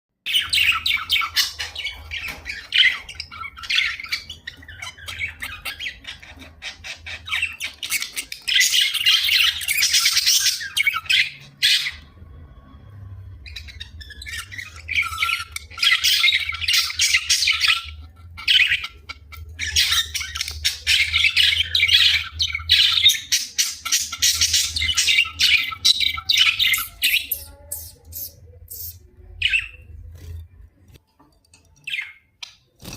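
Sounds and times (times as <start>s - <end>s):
budgie chattering and squawking: 1.2s - 11.0s.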